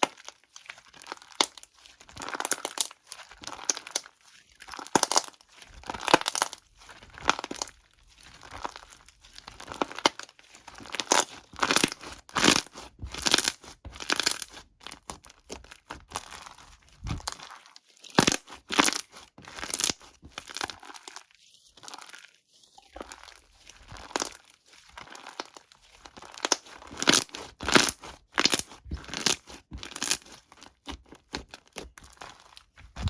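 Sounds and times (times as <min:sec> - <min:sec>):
crinkly material crumpled and torn: 0:16.4 - 0:19.9.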